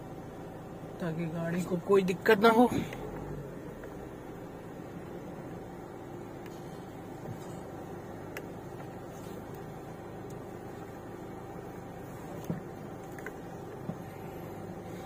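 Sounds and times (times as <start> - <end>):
car engine idling: 0.0 - 15.0
faint ticks: 6.4 - 10.5.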